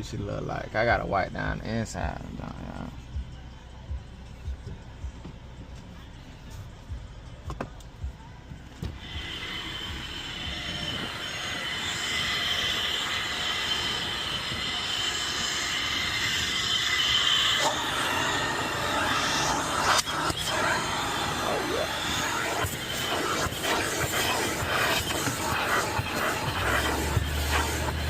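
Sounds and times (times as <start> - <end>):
high-pitched motor whine: 0.0 - 28.0
rushing air hiss: 8.9 - 28.0.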